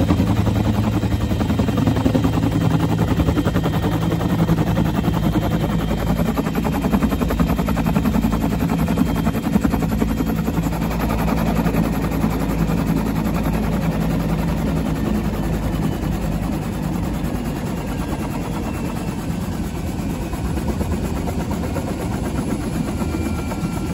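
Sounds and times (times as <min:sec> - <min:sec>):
helicopter rotor beating: 0:00.0 - 0:23.9
turbine engine hum: 0:00.0 - 0:23.9.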